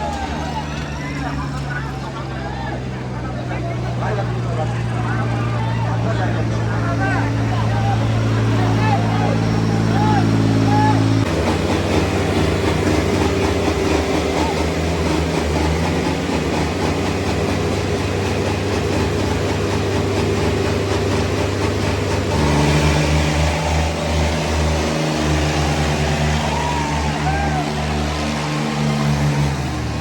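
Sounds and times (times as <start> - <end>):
tractor diesel engines under load: 0.0 - 30.0.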